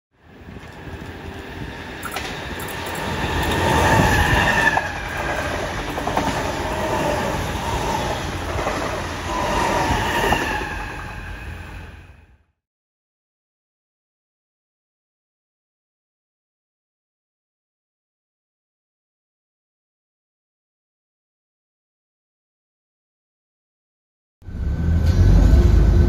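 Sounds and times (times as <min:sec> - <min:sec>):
train whining tones: 0:00.3 - 0:12.4
train wheels clattering: 0:02.0 - 0:10.4.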